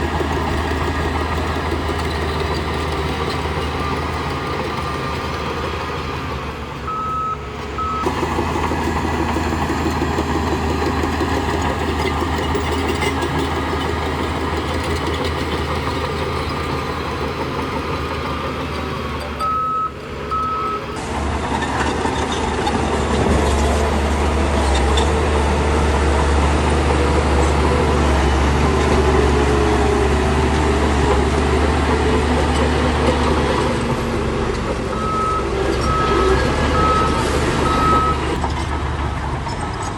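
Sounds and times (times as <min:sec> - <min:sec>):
heavy machinery diesel engines: 0:00.0 - 0:39.9
reversing alarm beeps: 0:06.9 - 0:08.1, 0:19.4 - 0:20.9, 0:35.0 - 0:38.2.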